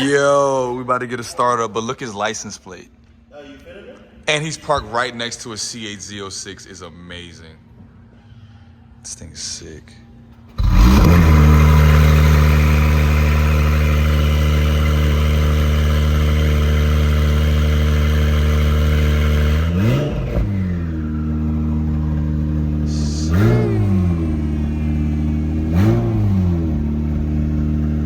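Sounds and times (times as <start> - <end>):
car engine idling and revving: 10.5 - 28.0.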